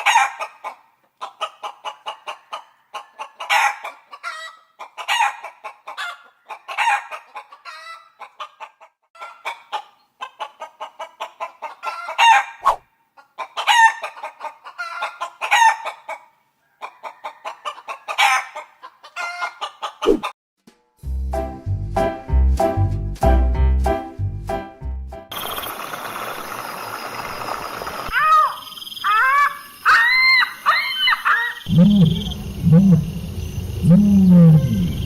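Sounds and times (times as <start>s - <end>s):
chickens clucking: 0.0s - 20.3s
music: 20.7s - 25.3s.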